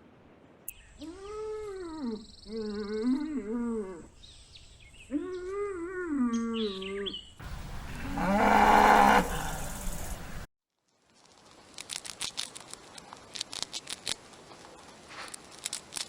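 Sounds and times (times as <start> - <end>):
rough animal call: 5.1 - 10.4
drawn-out falling animal calls: 5.4 - 10.4.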